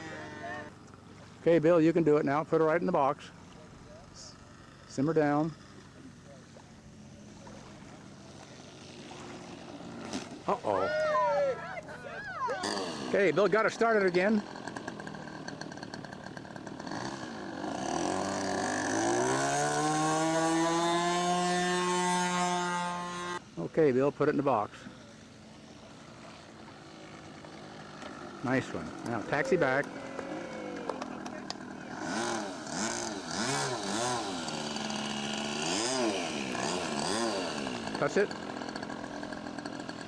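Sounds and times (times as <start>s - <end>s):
small model plane engine revving: 0.0s - 0.8s, 7.3s - 23.4s, 25.9s - 40.0s.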